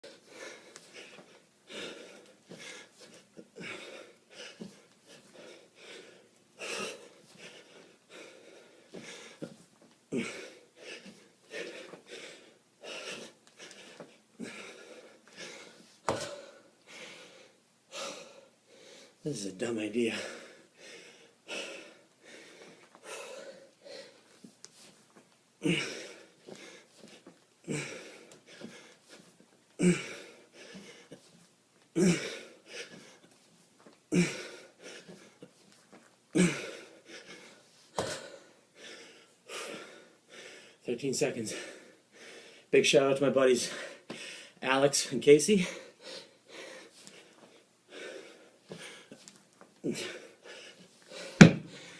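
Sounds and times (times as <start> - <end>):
man breathing hard: 0.0 - 19.2, 20.1 - 24.9, 25.6 - 31.3, 32.0 - 33.3, 34.1 - 35.6, 36.3 - 40.8, 41.5 - 42.7, 43.6 - 44.6, 45.5 - 51.9
person panting: 0.0 - 19.2, 20.1 - 24.3, 25.6 - 31.3, 32.0 - 33.3, 34.1 - 35.6, 36.3 - 40.8, 41.5 - 42.7, 43.6 - 44.6, 45.5 - 51.9.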